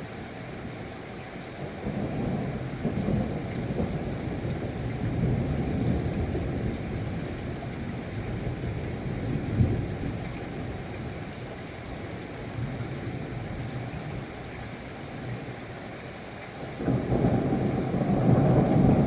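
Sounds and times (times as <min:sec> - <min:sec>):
rain: 0:00.0 - 0:19.0
thunder rumbling: 0:16.8 - 0:19.0.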